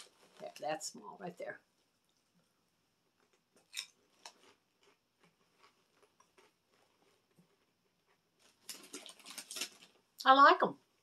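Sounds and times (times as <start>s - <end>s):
snack crunching: 3.2s - 10.0s.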